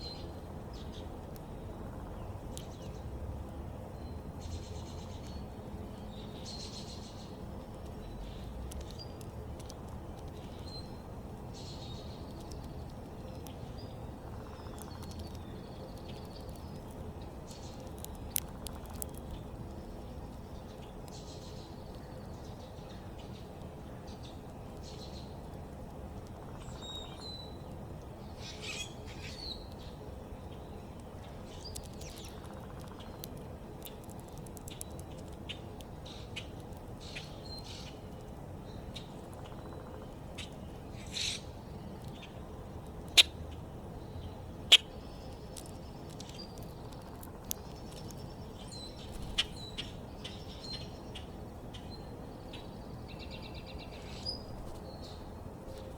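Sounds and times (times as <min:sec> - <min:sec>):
small birds chirping: 0:00.0 - 0:55.9.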